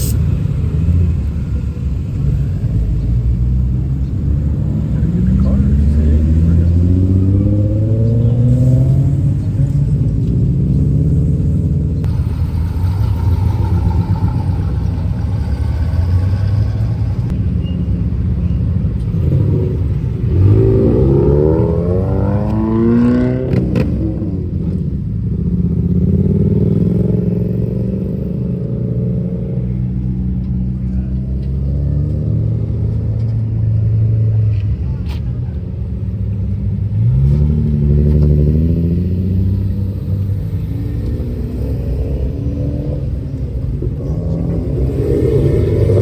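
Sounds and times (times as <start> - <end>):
steady low drone: 0.0 - 22.8, 38.9 - 46.0
car engines revving: 0.0 - 46.0.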